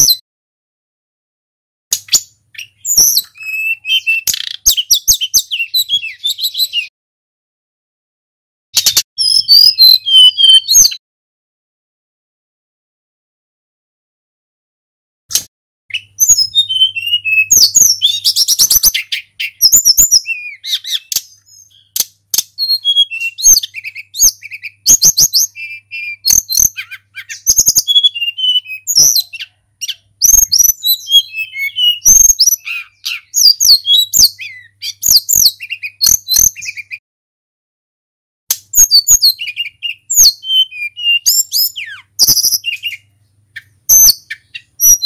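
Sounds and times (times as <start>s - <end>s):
bird singing whistled phrases: 0.0s - 0.2s, 2.0s - 6.9s, 8.8s - 11.0s, 15.9s - 37.0s, 38.6s - 45.0s
sharp bird clicks: 1.9s - 6.7s, 8.8s - 11.0s, 15.3s - 16.5s, 17.5s - 28.0s, 28.9s - 37.0s, 38.5s - 45.0s.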